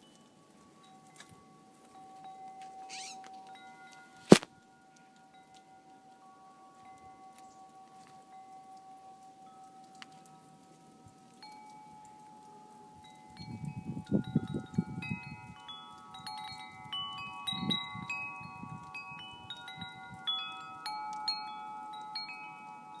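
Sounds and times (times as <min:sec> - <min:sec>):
wind chimes ringing: 0:00.0 - 0:23.0
wind rumbling on microphone: 0:13.0 - 0:20.9.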